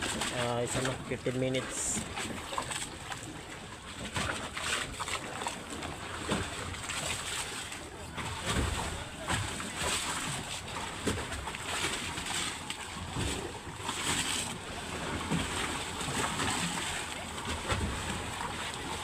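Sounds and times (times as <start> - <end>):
motorboat engine: 0.0 - 19.0
water splashing against hull: 0.0 - 19.0.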